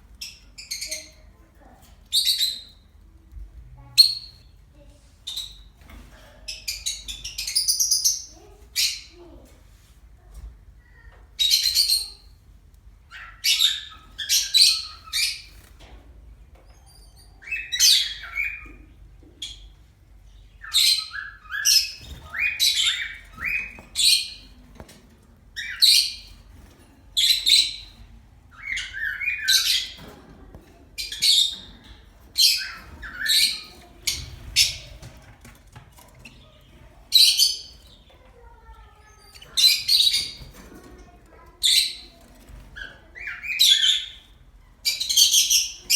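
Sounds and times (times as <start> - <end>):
birds calling: 13.0 - 45.9.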